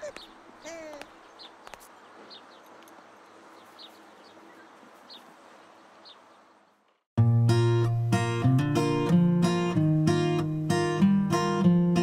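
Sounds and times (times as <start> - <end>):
acoustic guitar music: 7.2 - 12.0.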